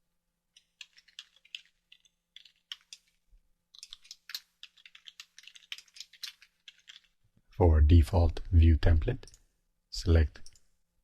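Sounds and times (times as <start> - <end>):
faint keyboard typing: 0.5 - 7.2.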